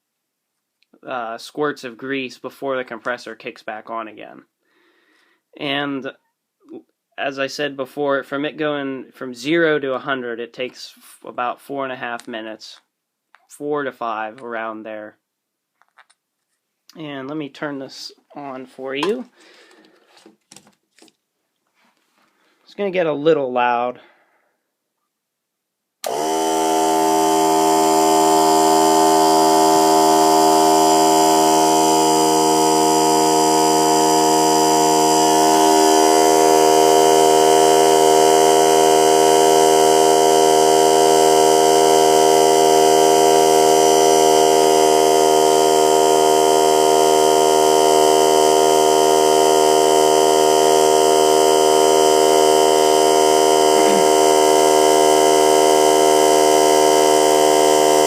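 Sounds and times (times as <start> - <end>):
air compressor running: 26.0 - 58.0.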